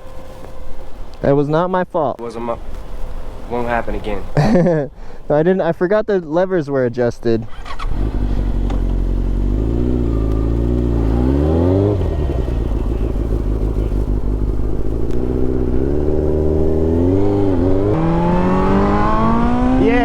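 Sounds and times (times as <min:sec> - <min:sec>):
motorcycle engine revving: 0:07.4 - 0:20.0.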